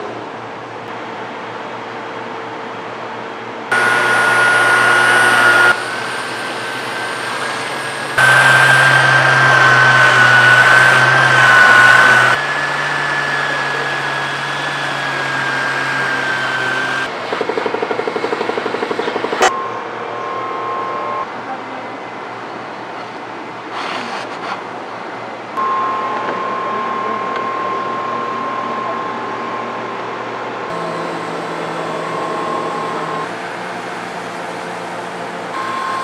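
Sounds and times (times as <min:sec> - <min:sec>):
machine motor whining: 0:03.7 - 0:19.8, 0:30.7 - 0:36.0.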